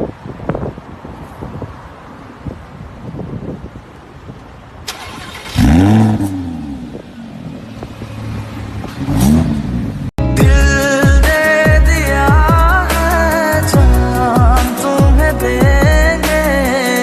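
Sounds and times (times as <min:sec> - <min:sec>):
car engine revving: 0:04.9 - 0:10.1
music: 0:10.2 - 0:17.0.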